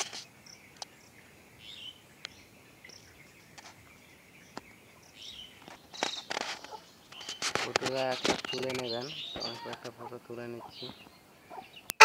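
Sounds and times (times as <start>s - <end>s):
bird chirps: 0.2s - 12.0s
sharp clicks: 5.6s - 10.0s.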